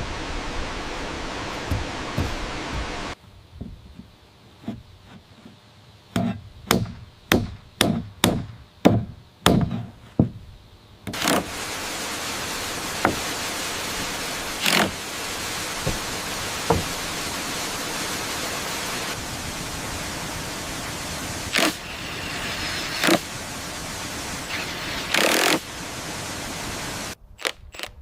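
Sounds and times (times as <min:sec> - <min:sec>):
waterfall rushing: 0:00.0 - 0:03.2, 0:11.1 - 0:27.2
sharp strikes on wood: 0:01.7 - 0:03.0, 0:06.1 - 0:10.4, 0:15.8 - 0:17.0
single knocks: 0:15.8 - 0:17.0.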